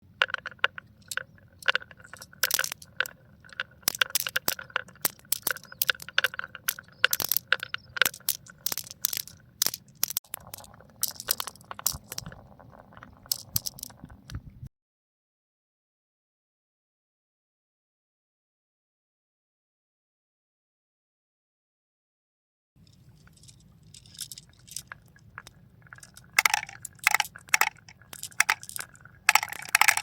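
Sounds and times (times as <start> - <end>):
marbles clattering down a track: 0.2 - 14.3, 23.3 - 30.0.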